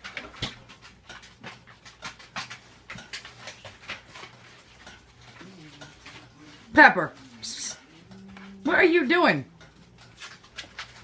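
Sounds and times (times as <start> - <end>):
kitten tapping and scraping bowl: 0.0 - 6.6.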